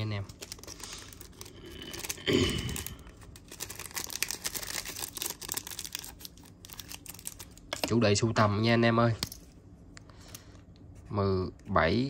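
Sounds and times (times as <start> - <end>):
rustling and crinkling: 0.0 - 2.2.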